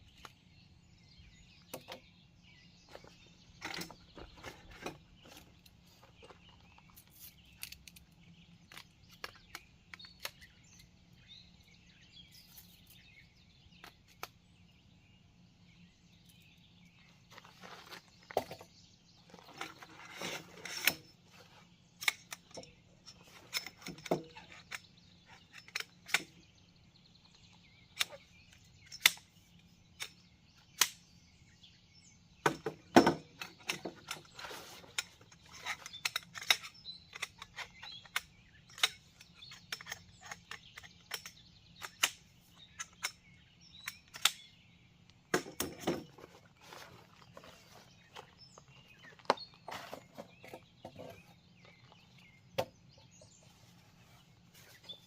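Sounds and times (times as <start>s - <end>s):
sharp clicks and knocks of handling: 2.9s - 11.0s, 17.3s - 26.4s, 27.3s - 29.4s, 30.0s - 31.1s, 32.4s - 53.4s.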